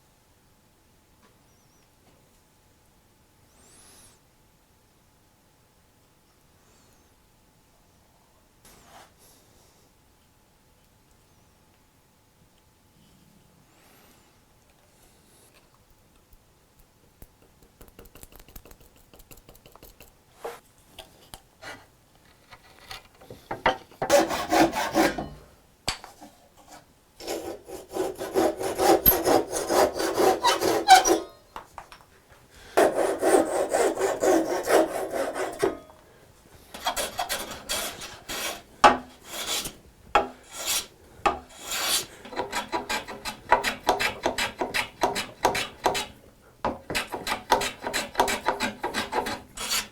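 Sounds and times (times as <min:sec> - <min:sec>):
hand tool scraping wood: 0:24.0 - 0:25.4, 0:26.2 - 0:31.4, 0:32.8 - 0:35.9, 0:36.7 - 0:49.9.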